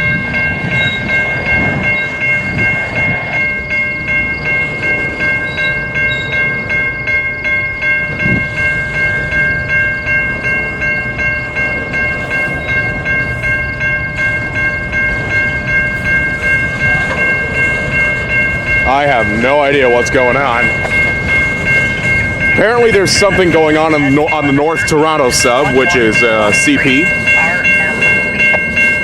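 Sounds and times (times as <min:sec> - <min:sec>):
crossing warning bell ringing: 0:00.0 - 0:29.0
freight train rumbling past: 0:00.0 - 0:29.0.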